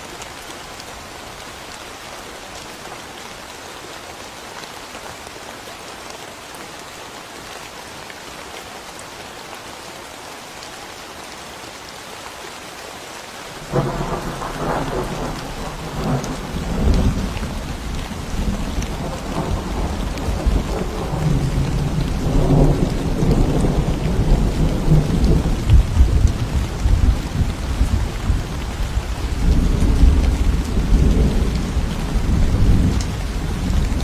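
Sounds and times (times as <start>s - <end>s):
rain falling: 0.0s - 34.0s
thunderclap and rolling rumble: 13.7s - 34.0s.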